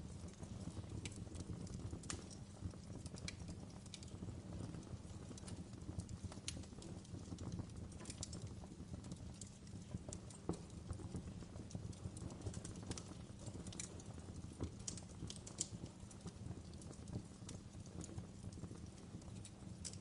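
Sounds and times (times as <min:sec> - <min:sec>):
wood fire crackling and popping: 0:00.0 - 0:20.0.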